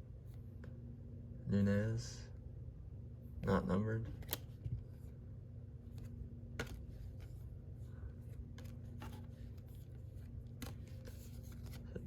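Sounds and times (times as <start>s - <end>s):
faint low hum: 0.0s - 12.0s
cards flipped by hand: 4.1s - 4.8s, 5.9s - 7.4s, 8.2s - 12.0s.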